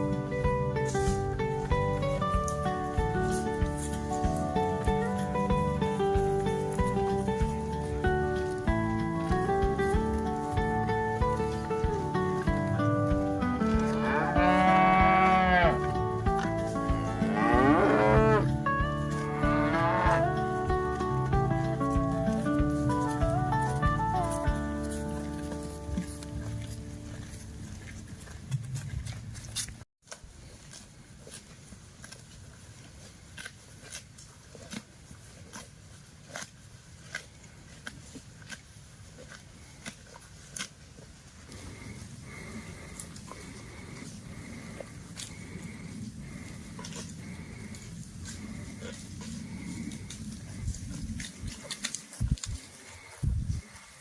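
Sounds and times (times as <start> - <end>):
acoustic guitar music: 0.0 - 27.4
cow chewing grass: 0.0 - 54.0
cow mooing: 13.6 - 20.4.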